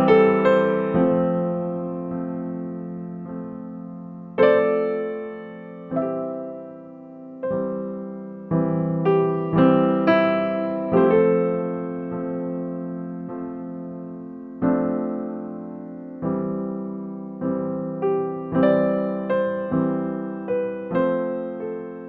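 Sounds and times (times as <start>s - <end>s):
slow gentle piano chords: 0.0s - 22.0s.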